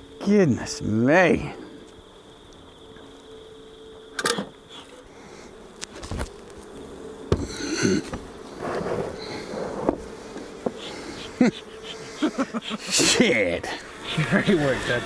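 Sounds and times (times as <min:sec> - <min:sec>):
honeybees humming: 0:00.0 - 0:15.0
wooden hive boxes knocking: 0:07.2 - 0:08.4, 0:09.8 - 0:11.0.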